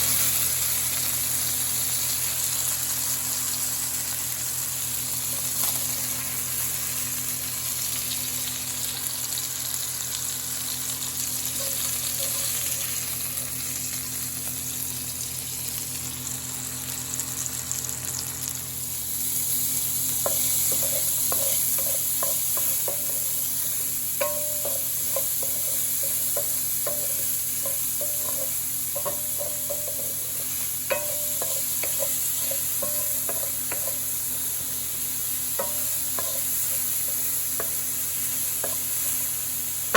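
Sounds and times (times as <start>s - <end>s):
food sizzling in a pot: 0.0s - 39.9s
utensil knocking against pot: 24.2s - 30.2s.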